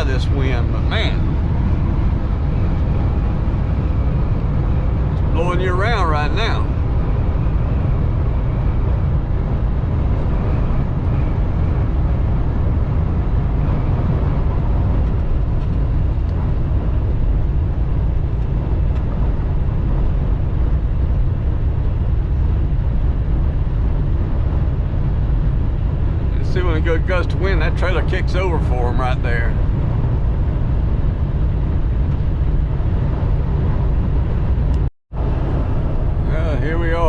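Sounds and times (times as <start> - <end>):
truck cab engine and road drone: 0.0 - 37.0.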